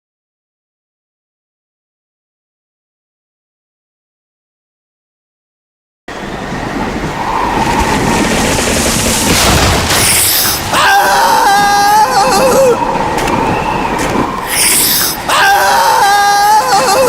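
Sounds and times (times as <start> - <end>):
blizzard wind rushing: 6.1 - 17.0
wavering scream or howl: 10.0 - 17.0.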